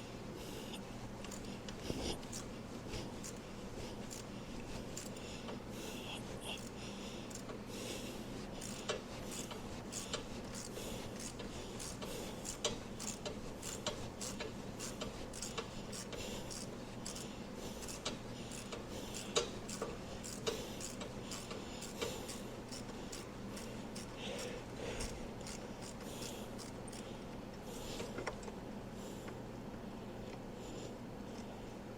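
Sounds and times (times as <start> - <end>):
steady low hum: 0.0 - 31.9
hand tools clicking and rattling: 1.2 - 5.2, 6.5 - 7.6, 8.6 - 27.1.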